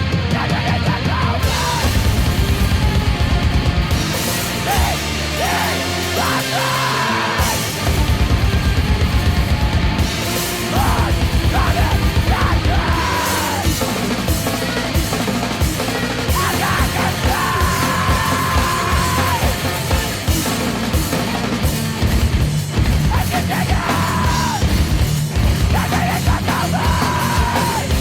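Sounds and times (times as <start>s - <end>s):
shouted vocals: 0.0s - 2.3s, 4.4s - 7.9s, 10.6s - 14.1s, 15.7s - 20.2s, 23.1s - 24.8s, 25.6s - 28.0s
distorted guitars: 0.0s - 28.0s
heavy rock music: 0.0s - 28.0s.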